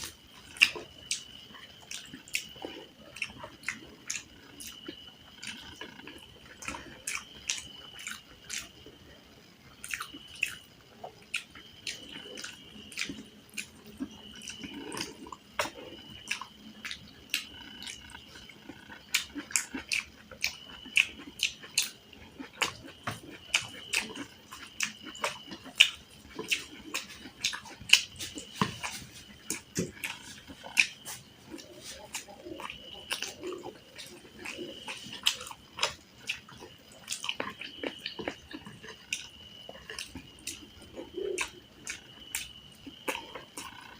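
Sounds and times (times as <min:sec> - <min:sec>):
chewing and biting food: 0:00.0 - 0:09.0, 0:09.7 - 0:43.9.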